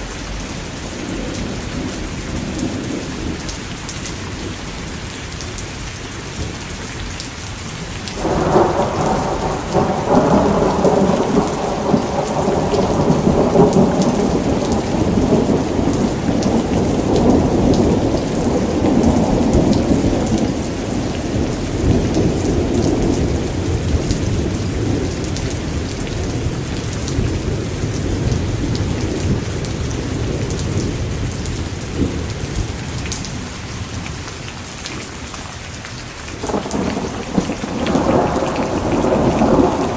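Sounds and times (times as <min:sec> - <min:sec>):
steady rain: 0:00.0 - 0:39.9
thunder rumbling: 0:08.2 - 0:33.6, 0:36.4 - 0:39.9.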